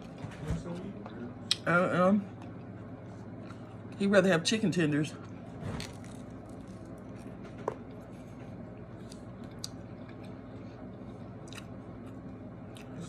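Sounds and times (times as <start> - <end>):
steady low hum: 0.0 - 13.0
person chewing food: 2.4 - 3.9, 5.2 - 13.0.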